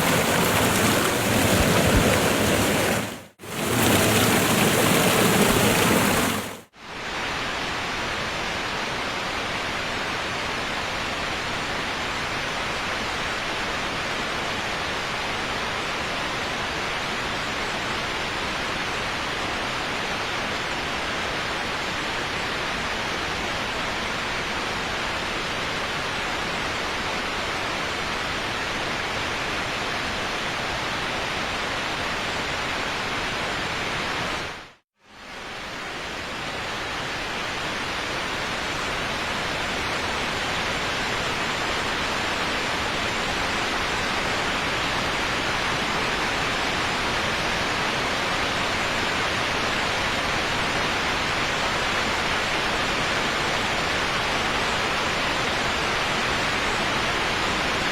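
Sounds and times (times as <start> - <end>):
waterfall roaring: 0.0 - 6.6.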